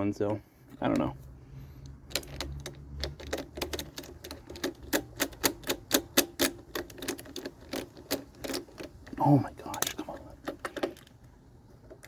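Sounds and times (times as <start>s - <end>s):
ratchet wrench clicking: 1.8s - 9.0s.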